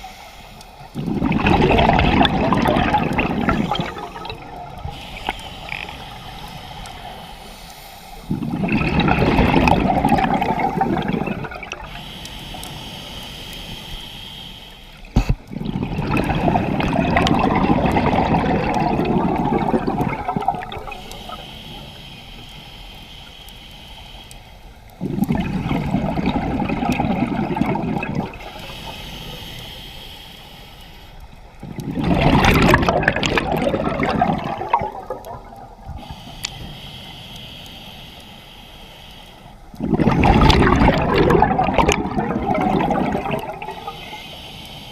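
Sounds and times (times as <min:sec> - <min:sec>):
hissing regulator inhalations: 0:00.0 - 0:44.9
exhaled bubbles underwater: 0:00.8 - 0:07.4, 0:08.2 - 0:12.8, 0:15.1 - 0:21.4, 0:25.0 - 0:29.0, 0:31.4 - 0:36.2, 0:39.7 - 0:44.3.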